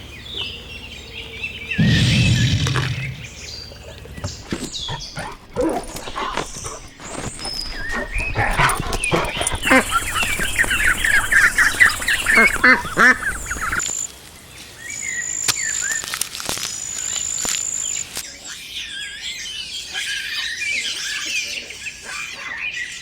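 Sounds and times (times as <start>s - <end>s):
dog barking and yelping: 4.2s - 13.8s.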